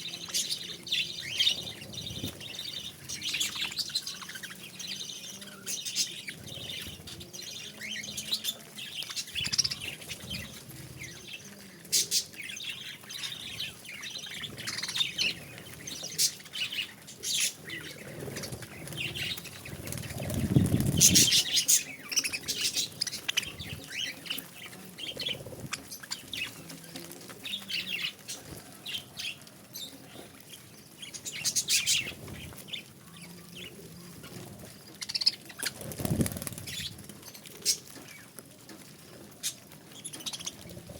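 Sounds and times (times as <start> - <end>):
wings fluttering: 5.6 - 40.9
budgerigars chirping: 9.0 - 10.6.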